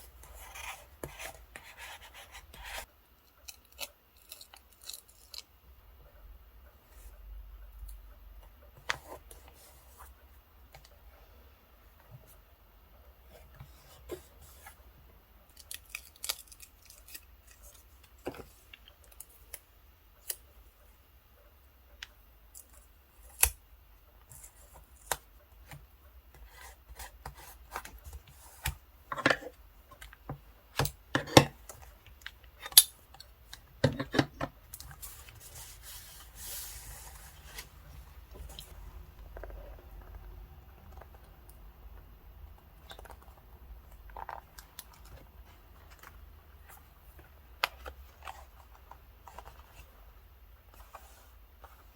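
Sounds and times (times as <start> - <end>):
paper rubbing and rustling: 35.0 - 37.8.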